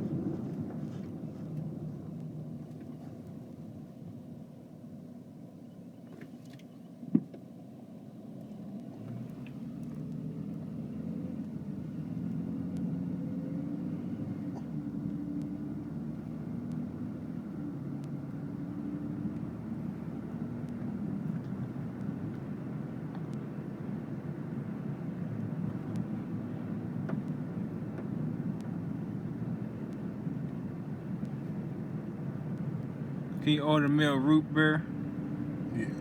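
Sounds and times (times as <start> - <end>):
car road rumble: 0.0 - 36.0
faint ticks: 15.1 - 16.8, 18.0 - 18.4.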